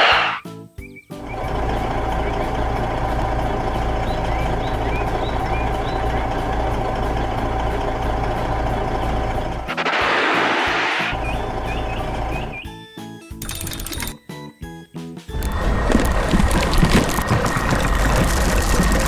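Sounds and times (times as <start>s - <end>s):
loud air hiss: 0.0s - 0.4s, 9.7s - 11.2s
heavy truck engine rumbling: 1.2s - 12.7s, 15.3s - 19.0s.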